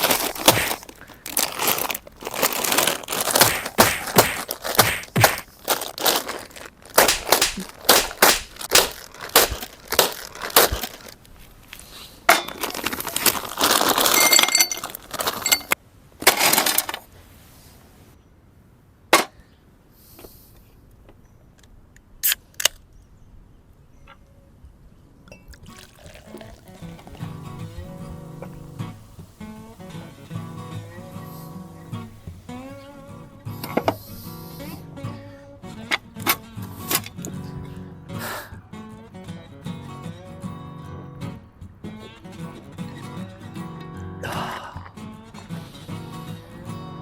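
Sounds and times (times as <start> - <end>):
sharp cracks and clatters: 0.0 - 11.3
sharp clicks: 7.0 - 10.8.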